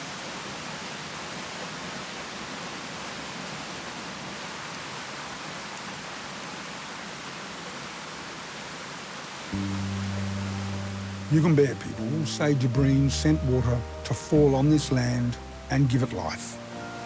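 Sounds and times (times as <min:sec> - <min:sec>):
waterfall rushing: 0:00.0 - 0:17.0
low musical drone: 0:09.6 - 0:17.0.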